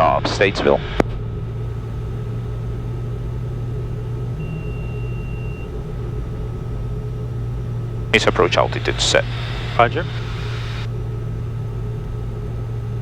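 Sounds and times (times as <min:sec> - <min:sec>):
aircraft cockpit drone: 0:00.0 - 0:13.0
faint even whine: 0:00.0 - 0:13.0
brief high steady tone: 0:04.4 - 0:05.7.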